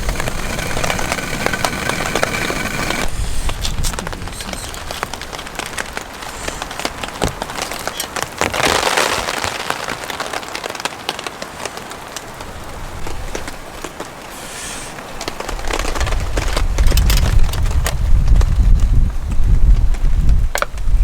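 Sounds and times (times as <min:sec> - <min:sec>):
low rumble of wind: 0:00.0 - 0:08.5, 0:15.0 - 0:21.0
raindrops ticking on a surface: 0:00.0 - 0:21.0.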